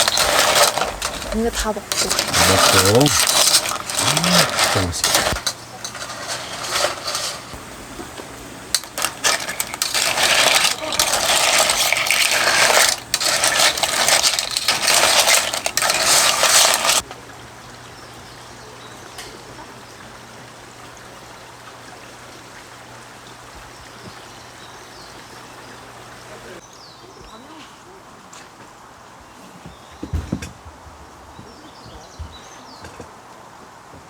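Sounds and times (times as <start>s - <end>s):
crackling sizzle: 0.0s - 17.0s.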